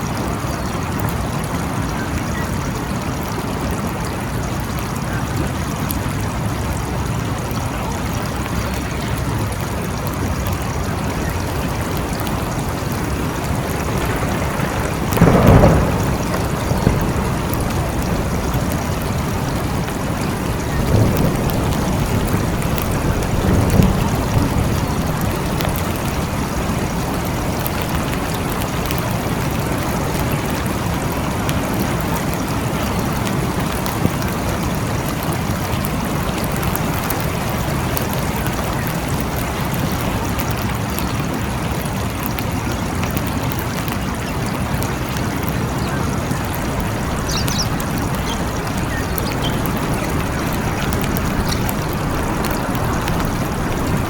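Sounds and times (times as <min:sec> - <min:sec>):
steady rain falling: 0:00.0 - 0:54.0
faint high chirps: 0:47.2 - 0:50.1.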